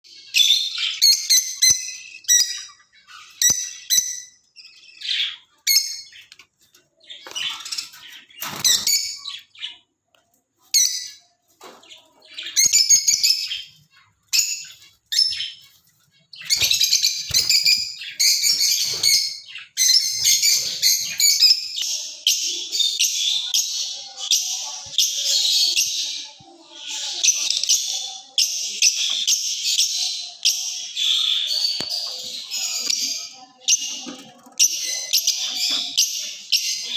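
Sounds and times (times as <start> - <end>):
birds chirping and chattering: 0.0 - 36.9.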